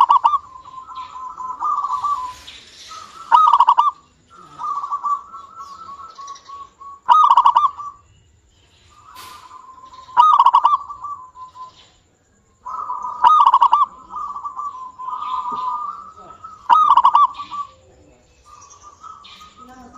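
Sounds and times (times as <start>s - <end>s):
dove cooing: 0.0s - 8.0s, 8.8s - 12.0s, 12.6s - 19.9s.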